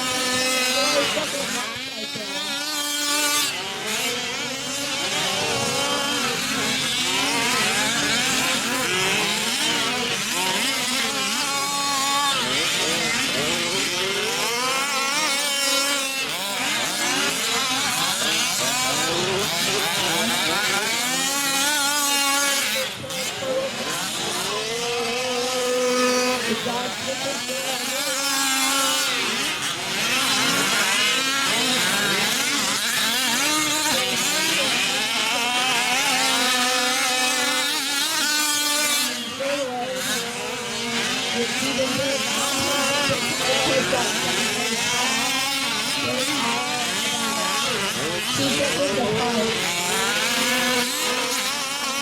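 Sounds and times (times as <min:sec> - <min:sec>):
small two-stroke engines buzzing: 0:00.0 - 0:52.0.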